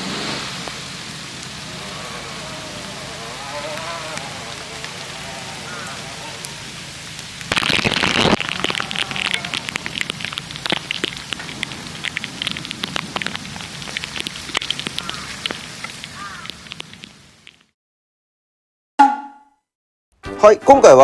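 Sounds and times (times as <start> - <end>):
rain tapping on hard surface: 0.0 - 17.7
loud rush of noise: 4.3 - 13.8.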